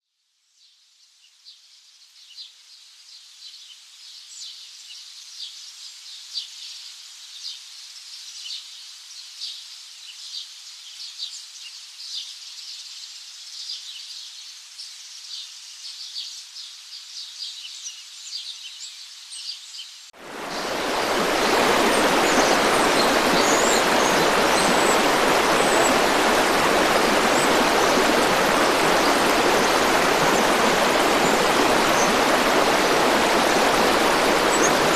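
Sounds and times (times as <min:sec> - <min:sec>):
small birds chirping: 0:09.4 - 0:34.9
river rushing: 0:20.2 - 0:34.9.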